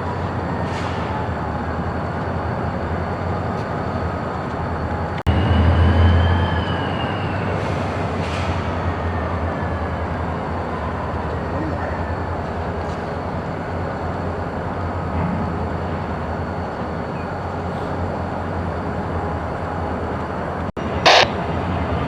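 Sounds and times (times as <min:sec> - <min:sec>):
short sharp burst of noise: 0:21.0 - 0:21.4.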